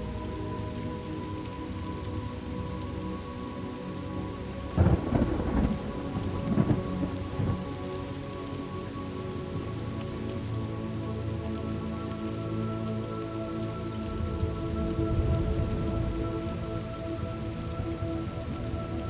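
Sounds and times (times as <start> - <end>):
steady rain falling: 0.0 - 19.0
thunderclap rumbling: 4.8 - 7.7.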